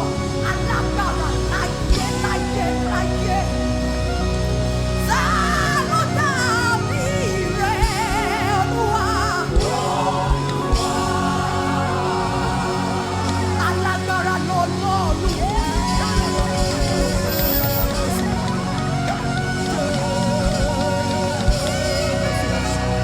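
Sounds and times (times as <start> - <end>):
sustained chords: 0.0 - 23.0
drum beats: 9.5 - 13.5, 15.1 - 22.0.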